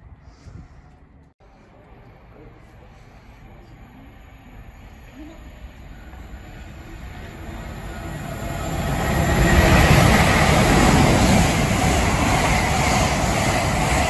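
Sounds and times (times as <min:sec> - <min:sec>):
train running past: 0:01.4 - 0:14.0.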